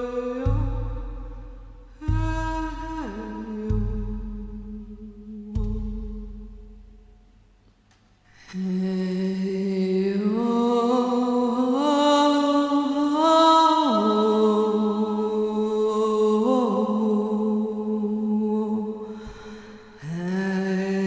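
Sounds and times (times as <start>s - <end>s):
woman chanting a wordless tone: 0.0s - 6.5s, 8.5s - 21.0s.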